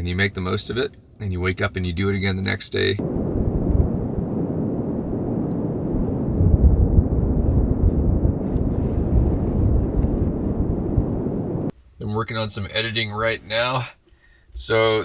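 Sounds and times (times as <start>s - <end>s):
blizzard wind gusting: 3.0s - 11.7s
wind buffeting on microphone: 3.0s - 11.7s.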